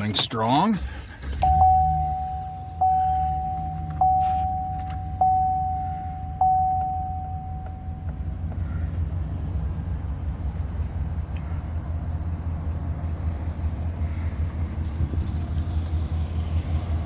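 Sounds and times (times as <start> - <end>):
pickup engine idling: 0.0 - 17.0
warning chime dinging: 1.4 - 8.1.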